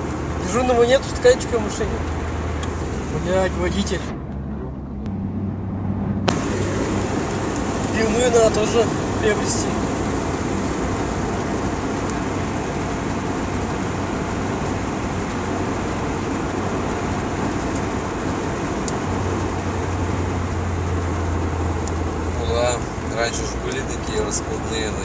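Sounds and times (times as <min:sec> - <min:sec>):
car cabin road and engine noise: 0:00.0 - 0:25.0
low hum: 0:02.1 - 0:12.2.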